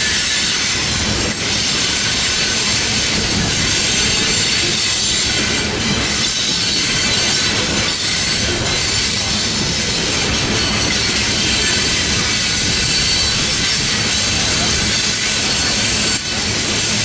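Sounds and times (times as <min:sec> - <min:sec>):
high wheel squeal: 0:00.0 - 0:17.0
train wheels rumbling on rail: 0:00.0 - 0:17.0.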